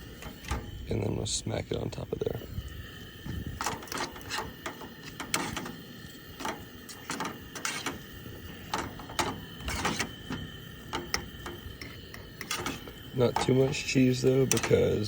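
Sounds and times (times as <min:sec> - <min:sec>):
utensil scraping and tapping in pan: 0:03.6 - 0:15.0.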